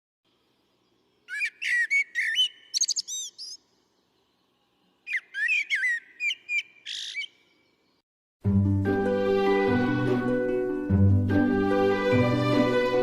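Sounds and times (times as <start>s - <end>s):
songbird singing: 0.3s - 8.0s.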